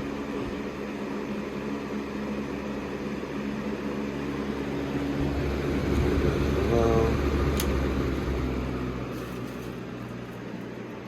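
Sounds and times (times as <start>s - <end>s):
box fan rushing air with hum: 0.0s - 11.0s
fan shaking: 2.6s - 11.0s
low rumble: 5.1s - 9.0s.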